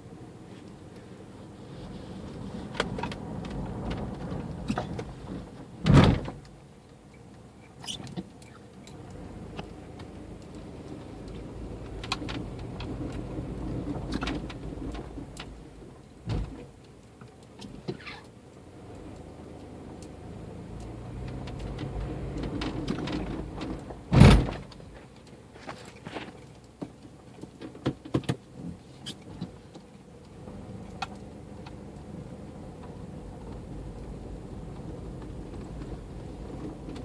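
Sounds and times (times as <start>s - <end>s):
car engine humming: 0.0s - 37.0s
loud clunks and knocks: 24.1s - 24.7s.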